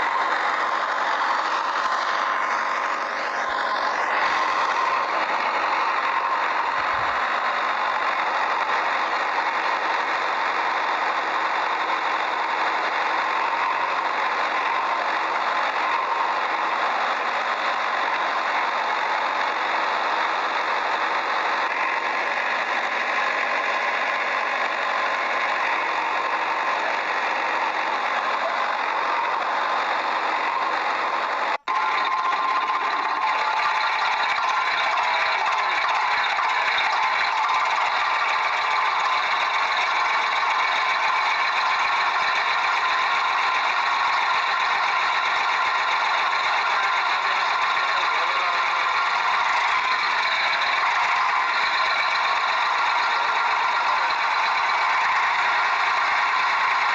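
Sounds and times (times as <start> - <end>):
small motor running: 0.0 - 56.9.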